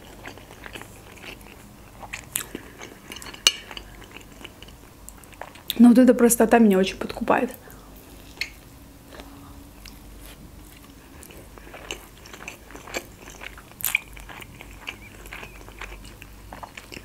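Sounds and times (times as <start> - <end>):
chewing soft food: 0.0 - 5.8, 8.1 - 17.0.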